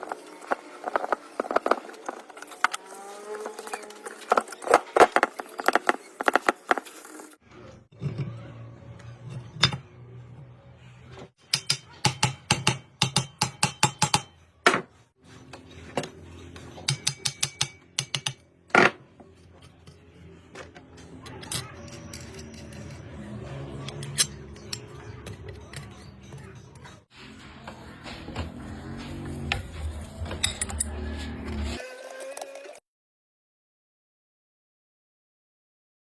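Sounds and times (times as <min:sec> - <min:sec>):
metal tools clinking: 0:21.2 - 0:27.0, 0:29.1 - 0:31.8.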